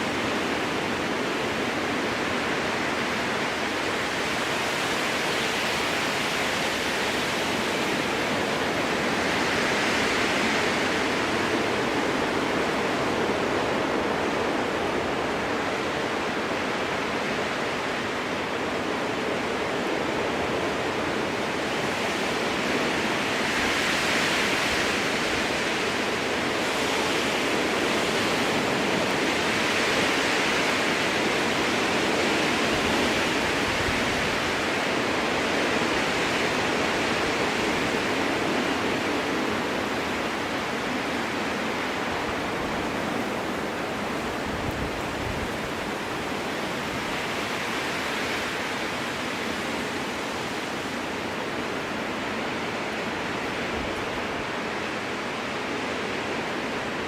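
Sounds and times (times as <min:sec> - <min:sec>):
strong wind through trees: 0:00.0 - 0:57.0.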